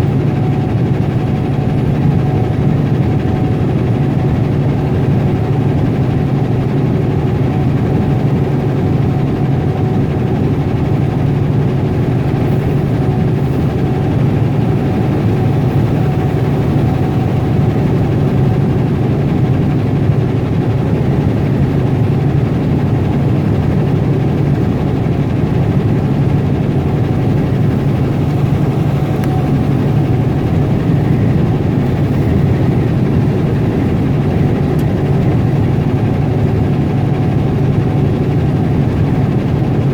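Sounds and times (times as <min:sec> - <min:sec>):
diesel truck engine droning: 0:10.6 - 0:38.9
road noise: 0:26.8 - 0:35.2.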